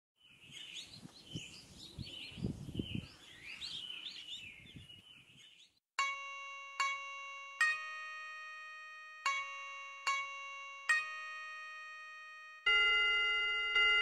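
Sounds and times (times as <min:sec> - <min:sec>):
songbirds chirping and warbling: 0:00.2 - 0:05.8
bright chime note: 0:06.0 - 0:12.7.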